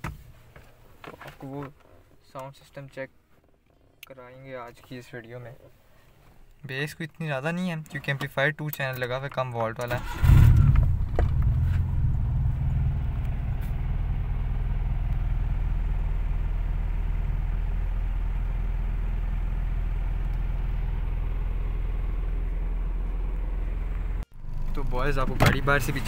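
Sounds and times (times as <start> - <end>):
car engine idling: 10.0 - 26.0.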